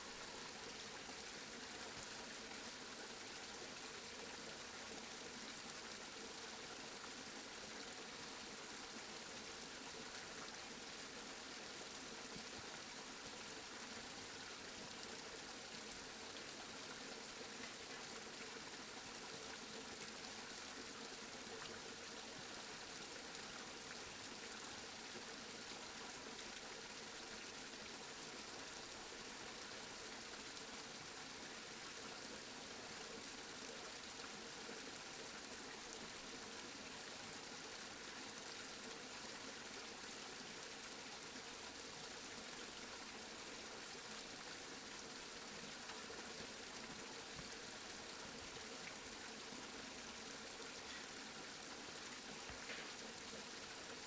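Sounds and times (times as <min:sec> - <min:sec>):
steady rain hiss: 0:00.0 - 0:03.8, 0:45.7 - 0:54.0.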